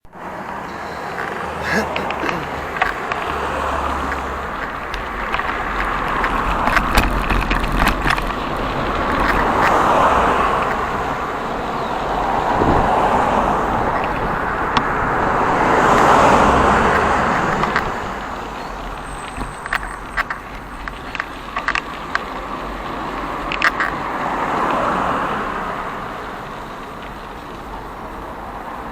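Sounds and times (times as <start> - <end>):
cars passing: 0.0 - 28.9
sharp clicks: 0.4 - 11.2.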